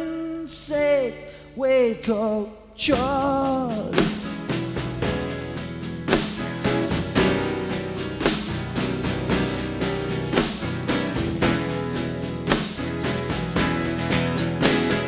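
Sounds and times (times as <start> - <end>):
live rock band playing: 3.3 - 15.0.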